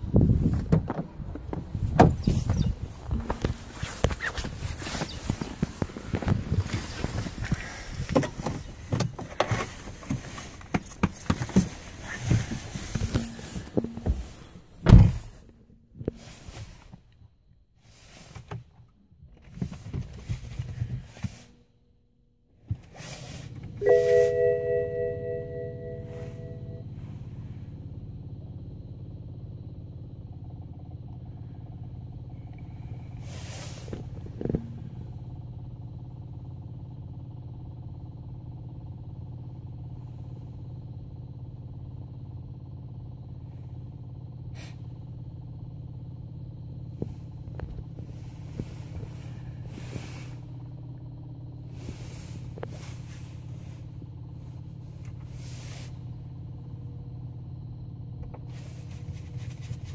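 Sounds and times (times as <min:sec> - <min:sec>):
diesel engine idling: 0:00.0 - 0:19.8, 0:20.7 - 0:59.9
engine knocks: 0:00.1 - 0:17.1.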